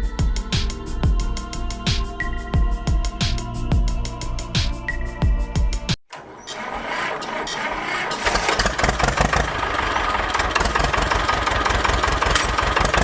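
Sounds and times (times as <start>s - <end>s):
engine starting and idling: 6.1s - 13.0s.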